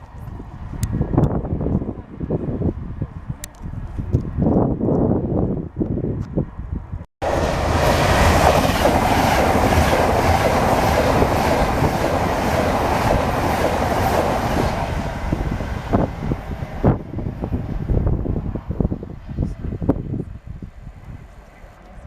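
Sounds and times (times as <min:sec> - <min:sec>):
train rumbling on rails: 0:06.5 - 0:22.0.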